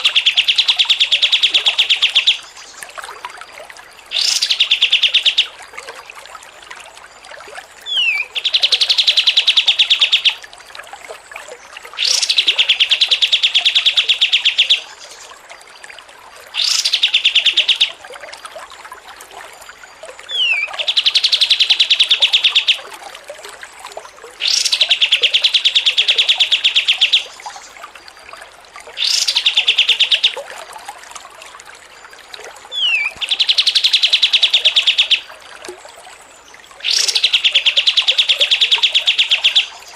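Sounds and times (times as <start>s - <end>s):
songbird whistle and trill: 7.9s - 10.4s, 20.3s - 22.8s, 32.7s - 35.3s, 36.8s - 39.9s.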